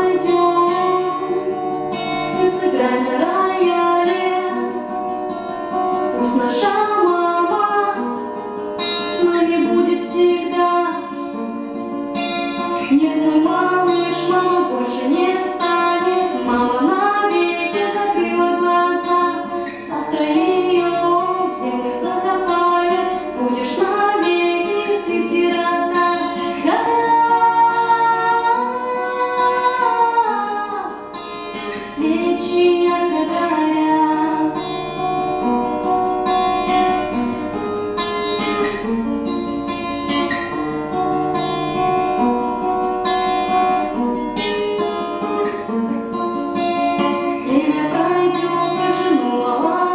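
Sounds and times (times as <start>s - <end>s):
woman singing: 0.0s - 11.6s, 12.6s - 36.2s, 46.6s - 49.9s
plucked acoustic guitar: 0.0s - 49.9s.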